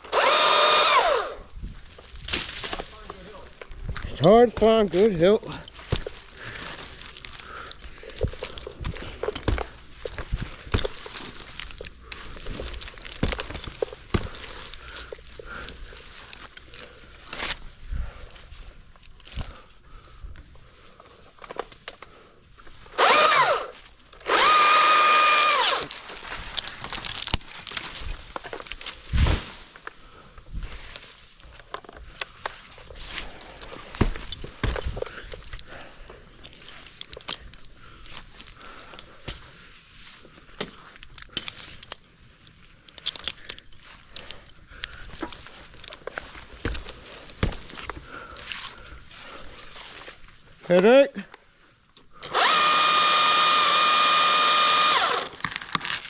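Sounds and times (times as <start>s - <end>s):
chainsaw revving: 0.0s - 1.4s, 23.0s - 25.9s, 52.2s - 55.4s.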